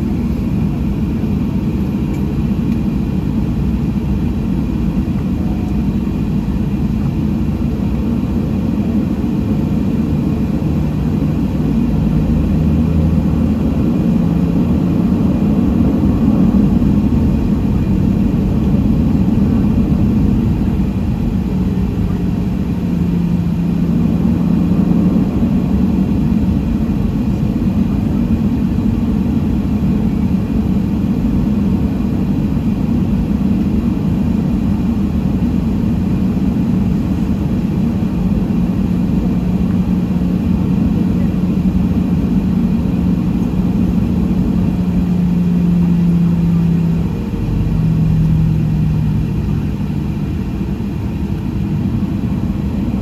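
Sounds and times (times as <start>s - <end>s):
airplane cabin engine rumble: 0.0s - 53.0s.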